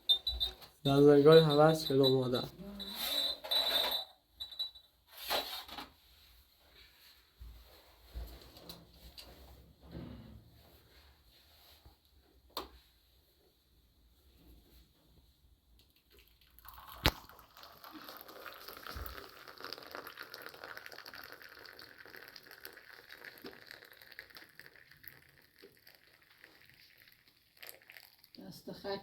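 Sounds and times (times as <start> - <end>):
glass clink: 0.1 - 4.8
tea pouring into glasses: 0.4 - 2.5, 15.9 - 29.0.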